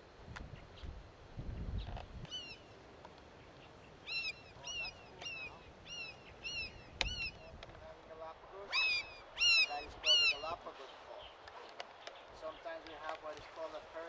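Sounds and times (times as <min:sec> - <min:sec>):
bird calling short notes: 0:08.7 - 0:10.6.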